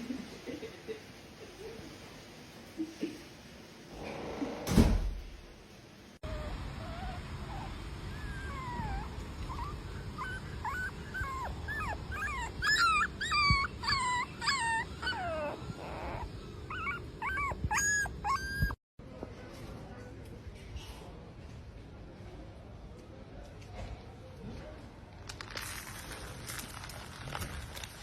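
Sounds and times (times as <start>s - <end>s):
dog whining and whimpering: 6.2s - 18.8s.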